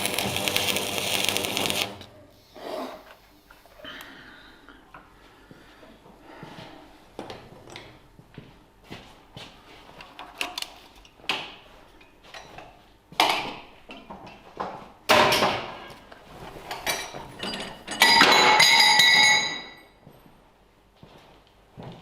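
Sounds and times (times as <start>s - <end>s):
metal tools knocking and clattering: 16.7s - 19.8s.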